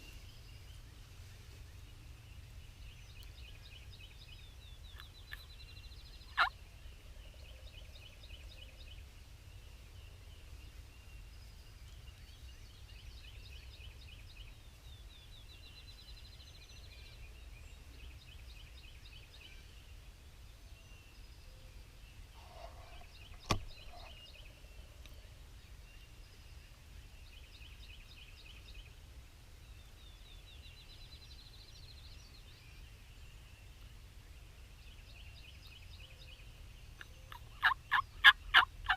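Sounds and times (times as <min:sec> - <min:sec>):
songbirds trilling: 0:00.0 - 0:38.9
turkey gobbling: 0:37.3 - 0:38.9.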